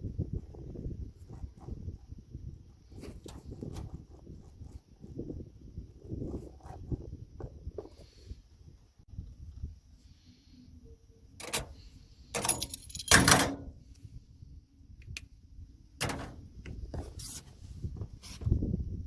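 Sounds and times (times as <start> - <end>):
metal parts clinking and rattling: 12.3 - 13.7.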